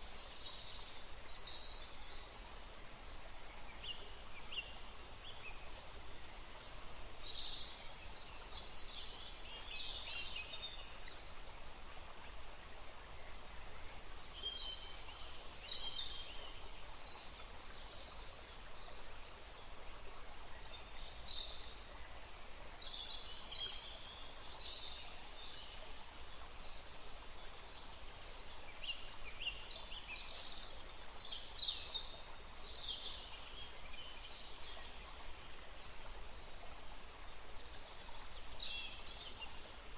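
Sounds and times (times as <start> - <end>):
wind: 0.0 - 39.9.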